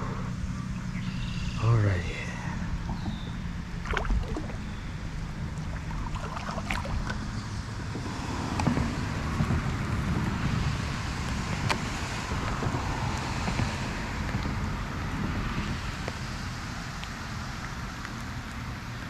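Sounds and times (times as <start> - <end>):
wind buffeting microphone: 0.0 - 16.7
steady low rumble: 0.0 - 18.1.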